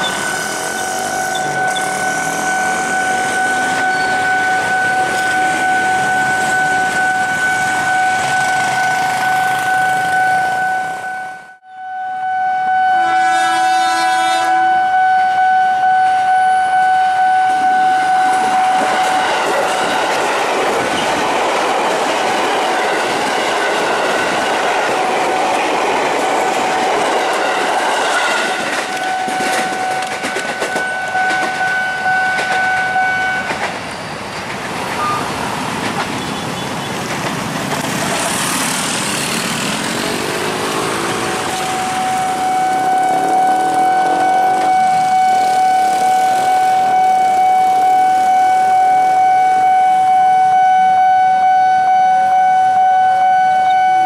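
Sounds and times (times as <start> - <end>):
electric train with clattering wheels: 0.0 - 11.4, 13.2 - 50.1
level crossing warning alarm: 0.0 - 20.9, 26.4 - 33.7, 40.0 - 54.0.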